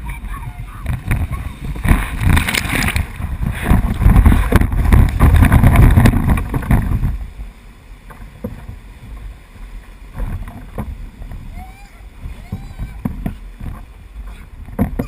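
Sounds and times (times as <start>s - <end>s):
rushing whitewater: 0.0s - 15.0s
wind buffeting microphone: 0.0s - 15.0s.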